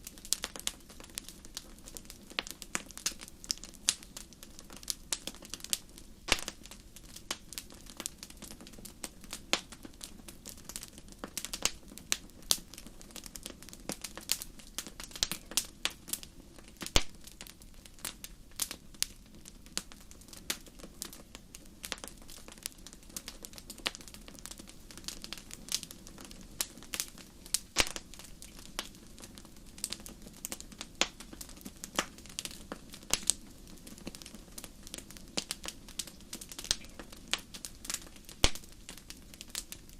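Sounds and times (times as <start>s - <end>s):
fire crackling and popping: 0.0s - 39.9s
flames rushing: 21.8s - 39.9s.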